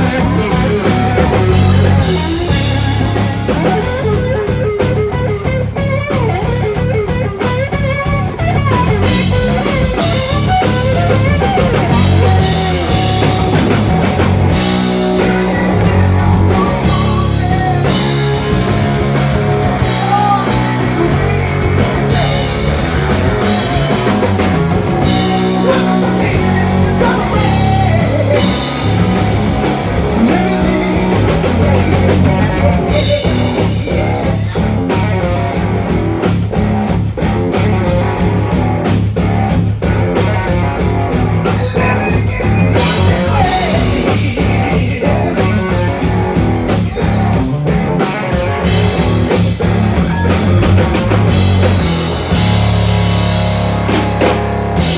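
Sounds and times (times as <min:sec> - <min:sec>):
electric guitar sliding down: 0:00.0 - 0:54.9
fast steady drum hits: 0:00.0 - 0:54.9
live rock band playing: 0:00.0 - 0:54.9.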